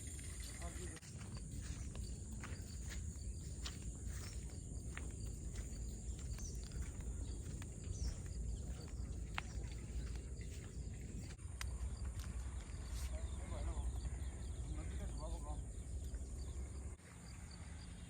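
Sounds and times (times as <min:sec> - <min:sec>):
faint bird chirps: 0:00.0 - 0:11.4
wind rumble on microphone: 0:00.0 - 0:12.9.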